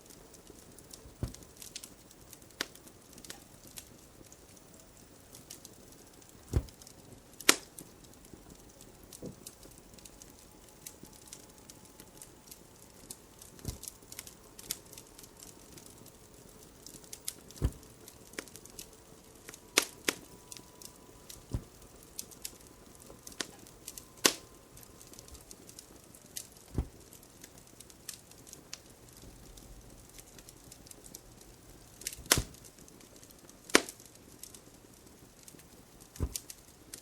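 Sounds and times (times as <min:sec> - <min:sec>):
wood fire crackling: 0:00.0 - 0:37.0
low thuds: 0:00.7 - 0:03.6, 0:04.6 - 0:06.9, 0:13.6 - 0:14.6, 0:15.6 - 0:18.3, 0:20.2 - 0:22.2, 0:26.7 - 0:27.0.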